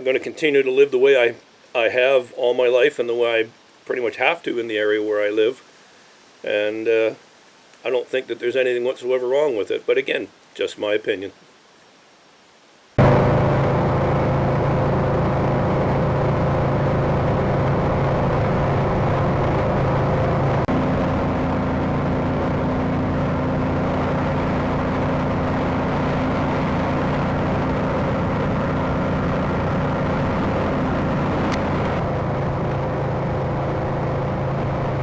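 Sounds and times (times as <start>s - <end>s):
vehicle engine running: 13.0s - 35.0s.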